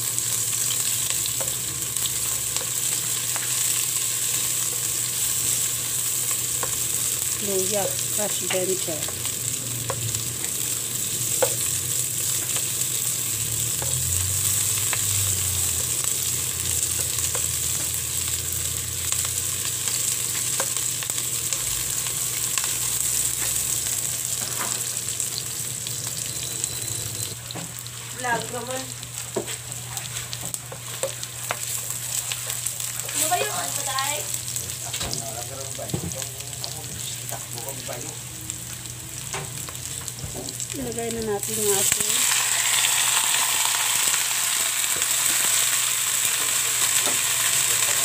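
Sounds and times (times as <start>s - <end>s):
vegetables sizzling in hot oil: 0.0s - 48.0s.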